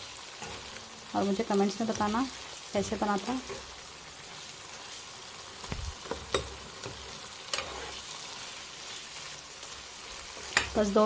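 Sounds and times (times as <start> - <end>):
food sizzling in a pan: 0.0 - 11.0
spatula tapping and scraping pan: 6.0 - 8.0, 10.4 - 10.8.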